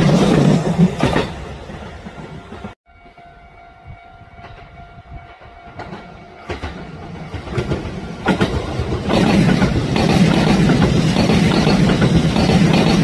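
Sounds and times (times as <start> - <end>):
electric train passing: 0.0 - 13.0
wheels clicking over rail joints: 5.6 - 13.0.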